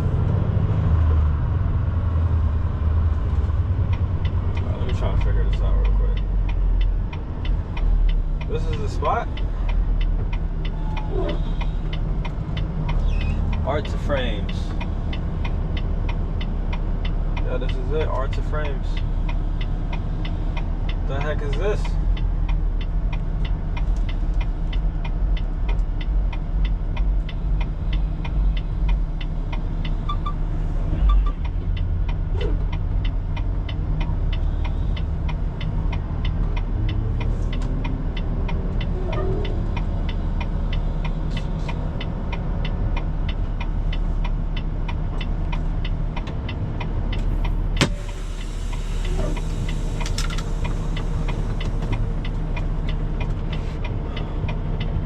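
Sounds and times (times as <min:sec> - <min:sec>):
truck diesel engine running: 0:00.0 - 0:55.0
fast regular ticking: 0:11.4 - 0:30.6.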